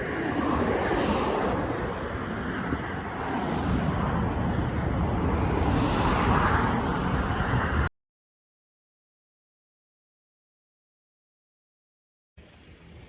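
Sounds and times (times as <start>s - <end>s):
highway traffic passing: 0.0s - 7.9s.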